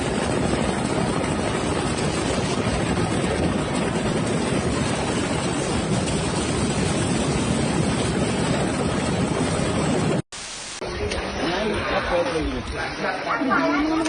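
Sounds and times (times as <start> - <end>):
floodwater rushing: 0.0 - 13.3.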